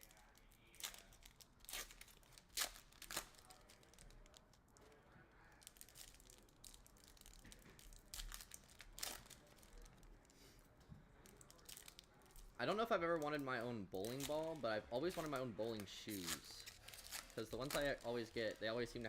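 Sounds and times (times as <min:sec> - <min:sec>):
card pack wrappers tearing: 0:00.6 - 0:04.4, 0:14.0 - 0:19.0.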